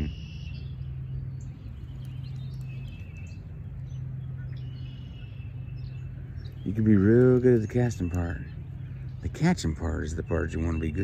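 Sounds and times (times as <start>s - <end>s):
birds chirping: 0.0s - 11.0s
low background hum: 0.0s - 11.0s.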